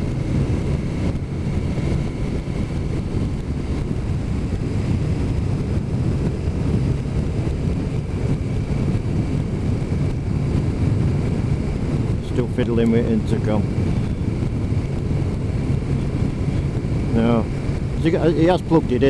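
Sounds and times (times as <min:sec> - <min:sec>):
motorcycle engine rumble: 0:00.0 - 0:19.0
road noise: 0:00.0 - 0:19.0
wind on microphone: 0:00.0 - 0:19.0.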